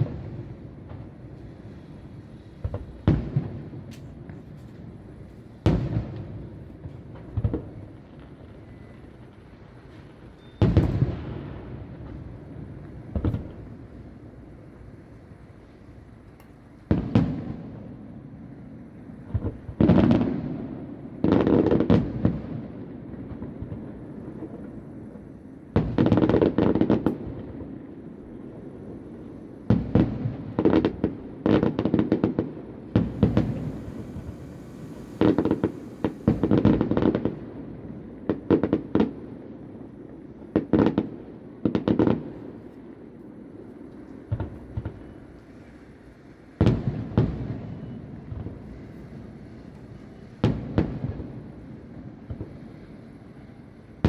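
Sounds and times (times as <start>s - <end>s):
distant fireworks bangs: 0.0s - 42.7s, 43.4s - 54.0s
crackling sparks: 23.4s - 37.5s.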